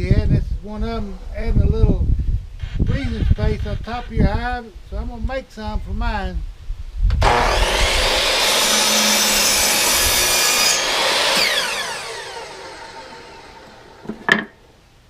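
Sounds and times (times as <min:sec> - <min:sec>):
electric saw cutting wood: 0:07.2 - 0:14.3.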